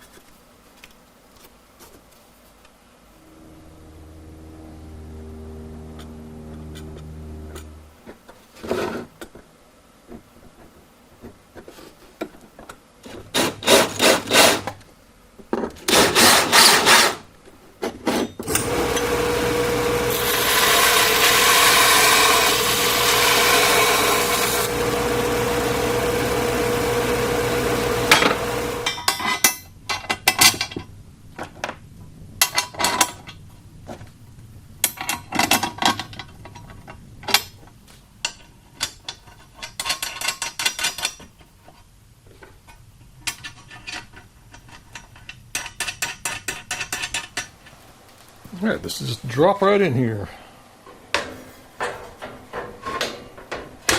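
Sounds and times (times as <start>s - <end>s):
power tool grinding steel: 3.2s - 8.1s, 18.4s - 29.0s
rasping file strokes on metal: 13.3s - 14.8s, 18.5s - 28.9s.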